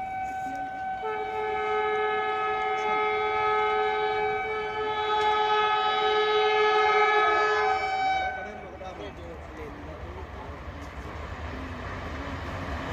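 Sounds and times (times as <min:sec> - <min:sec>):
two-note train horn blast: 0:00.0 - 0:09.0.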